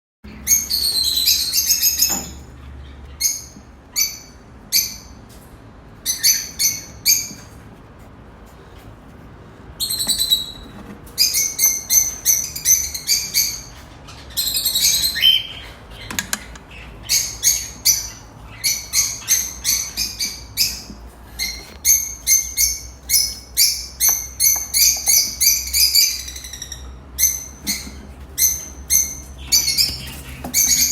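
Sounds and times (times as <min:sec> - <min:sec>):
chicks chirping: 0:09.8 - 0:30.9.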